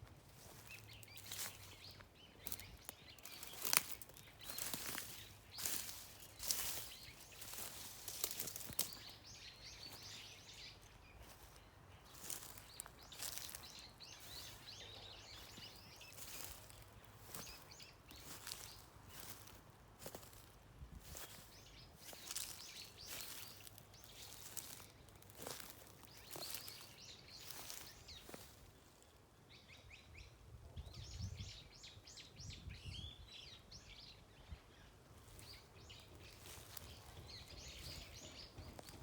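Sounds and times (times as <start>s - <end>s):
rustles: 0.0s - 9.3s, 21.1s - 28.6s, 35.2s - 39.0s
small birds chirping faintly: 0.0s - 39.0s.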